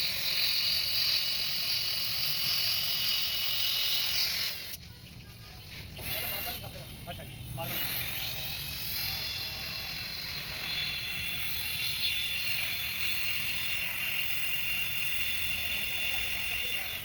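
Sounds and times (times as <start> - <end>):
machine whine: 5.6 - 17.0.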